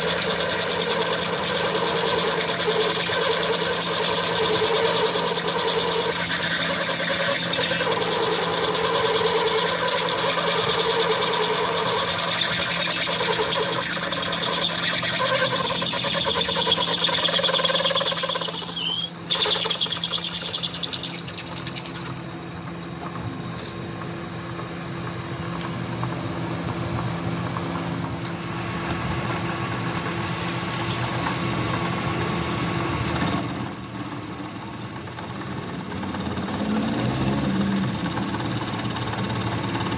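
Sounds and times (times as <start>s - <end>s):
power tool motor rattling: 0.0s - 22.4s, 33.0s - 39.9s.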